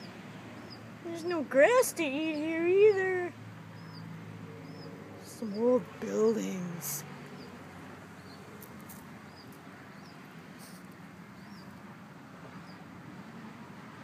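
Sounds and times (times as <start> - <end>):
small bird chirping faintly: 0.0 - 1.5, 2.2 - 11.8.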